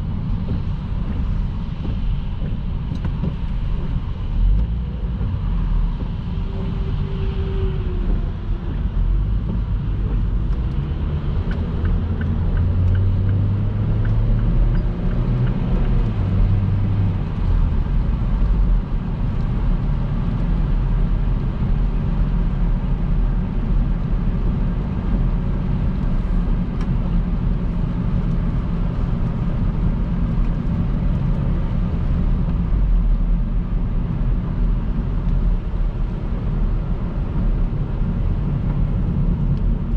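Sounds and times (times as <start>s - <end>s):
car tyres on wet road: 0.0s - 39.9s.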